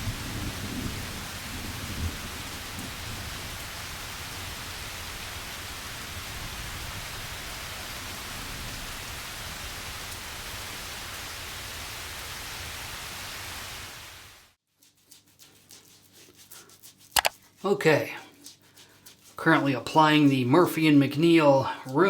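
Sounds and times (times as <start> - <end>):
steady downpour of rain: 0.0 - 14.6.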